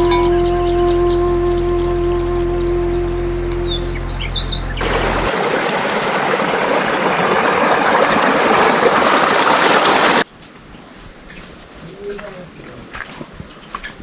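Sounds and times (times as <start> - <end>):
flowing water rushing: 4.7 - 10.3.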